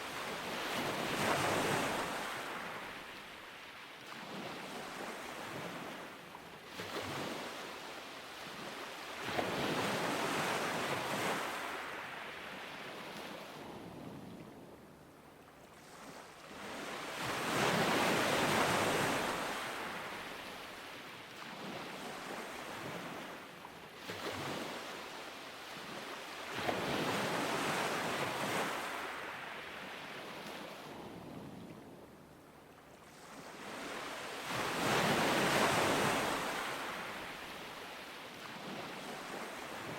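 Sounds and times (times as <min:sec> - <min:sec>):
ocean waves breaking: 0:15.8 - 0:31.0, 0:33.0 - 0:39.9.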